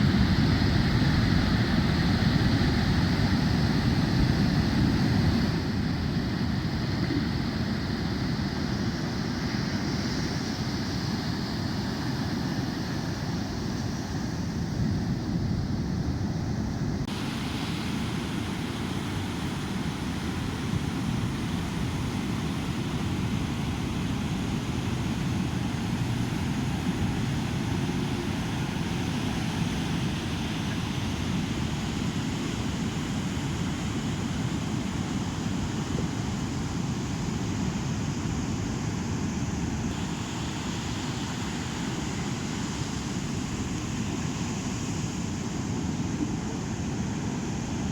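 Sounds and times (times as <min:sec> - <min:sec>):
engine drone: 0:17.0 - 0:31.8.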